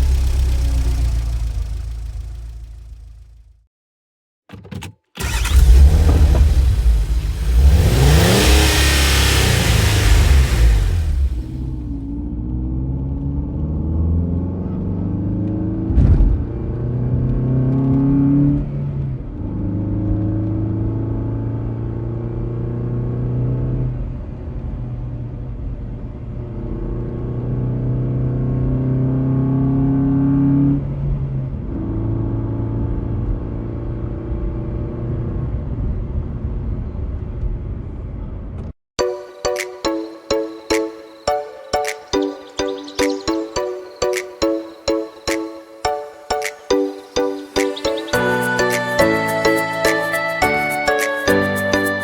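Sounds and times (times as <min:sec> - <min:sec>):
car engine accelerating: 0:00.0 - 0:03.5, 0:05.2 - 0:36.0.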